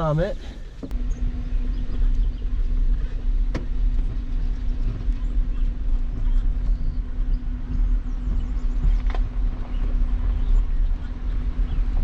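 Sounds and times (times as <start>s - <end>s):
steady hum: 0.0s - 12.0s
truck engine rumbling: 0.0s - 12.0s.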